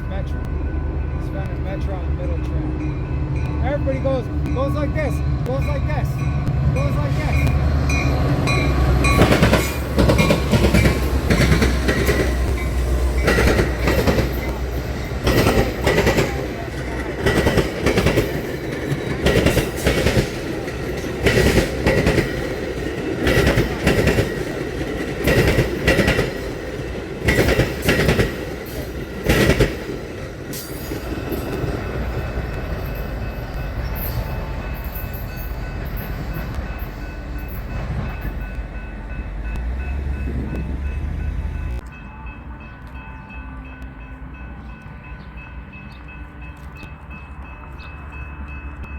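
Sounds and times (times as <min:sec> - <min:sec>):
train rumble: 0:00.0 - 0:48.9
train wheels clacking over crossing: 0:00.1 - 0:43.1.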